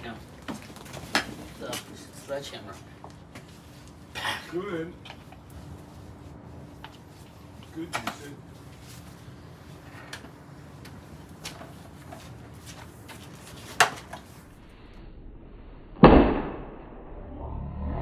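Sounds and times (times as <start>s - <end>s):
loud thud: 15.9s - 17.0s.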